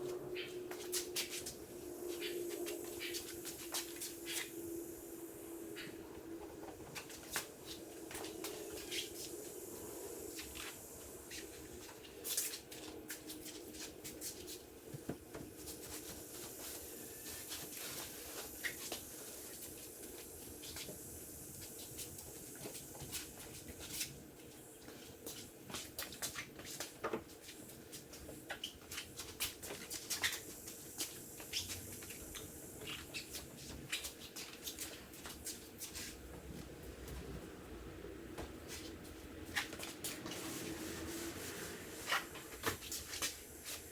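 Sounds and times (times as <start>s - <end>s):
faint steady hum: 0.0s - 26.4s.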